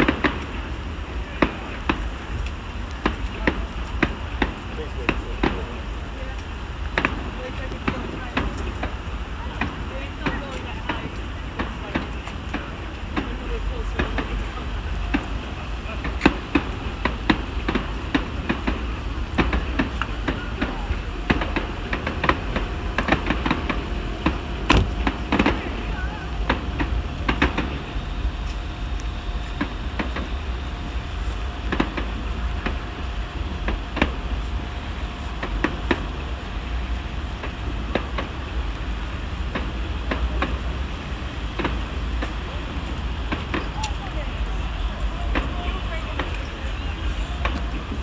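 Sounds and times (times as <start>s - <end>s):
distant fireworks popping: 0.0s - 48.0s
low rumble: 12.6s - 48.0s.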